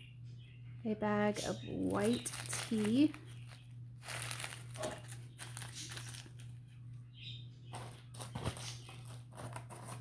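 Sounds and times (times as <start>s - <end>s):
steady low hum: 0.0s - 10.0s
packaging rustling: 1.8s - 6.6s.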